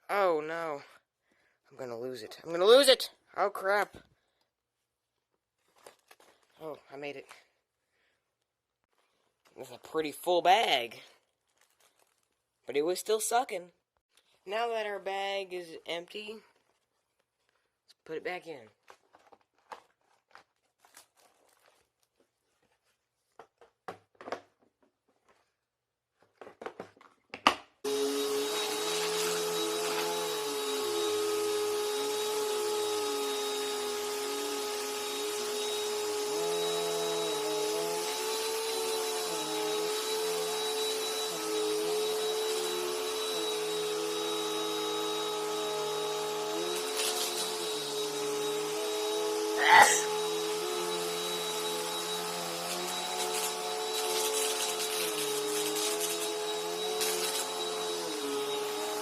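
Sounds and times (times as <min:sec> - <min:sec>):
vacuum cleaner running: 0:27.9 - 0:59.0.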